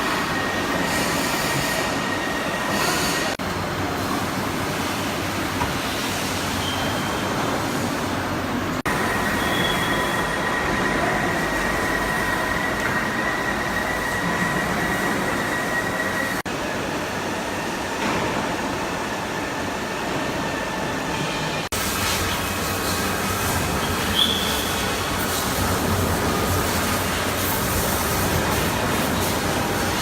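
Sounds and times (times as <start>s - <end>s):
high steady machine whine: 8.6s - 30.0s.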